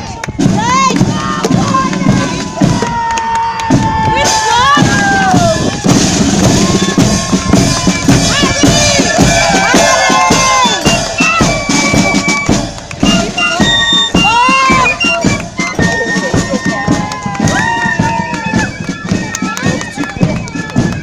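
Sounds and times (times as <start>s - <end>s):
bass and snare drums: 0.0s - 21.0s
pipes playing melody: 5.6s - 21.0s.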